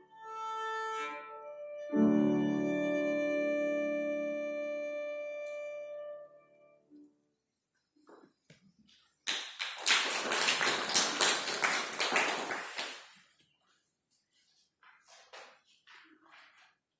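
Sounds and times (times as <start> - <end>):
audience applauding: 9.2 - 13.3.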